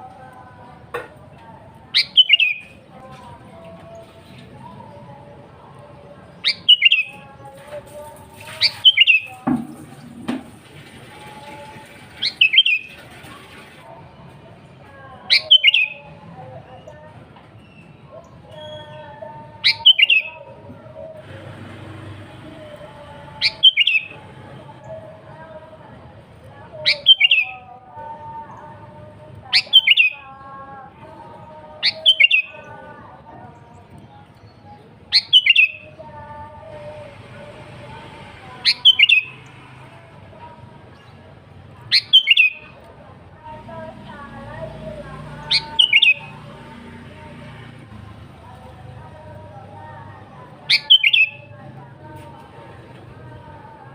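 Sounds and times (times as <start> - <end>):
bird calling in bright phrases: 1.9 - 2.8, 6.3 - 7.5, 8.3 - 9.4, 11.1 - 13.0, 15.2 - 16.1, 17.6 - 22.5, 23.1 - 25.0, 26.7 - 27.8, 29.5 - 30.4, 31.5 - 32.9, 33.8 - 36.0, 36.6 - 39.5, 41.8 - 42.9, 44.9 - 46.6, 49.9 - 51.5
bird calling sharp phrase: 38.6 - 39.4, 45.4 - 46.4, 50.7 - 51.4.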